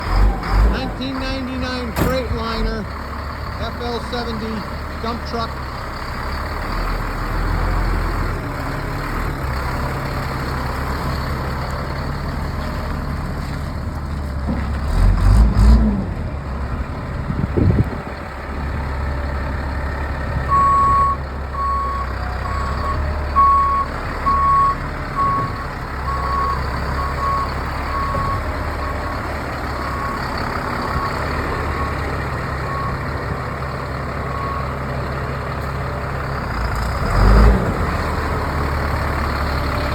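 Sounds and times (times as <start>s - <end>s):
diesel truck engine running: 0.0s - 39.9s
short thump: 2.0s - 2.4s
backup alarm beeping: 20.5s - 29.1s.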